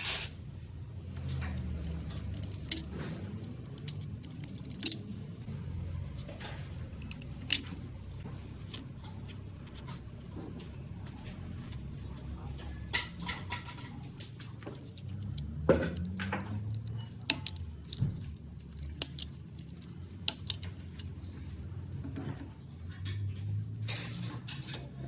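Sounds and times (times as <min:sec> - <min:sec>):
small metal parts clicking: 0:01.0 - 0:09.8, 0:12.5 - 0:21.7.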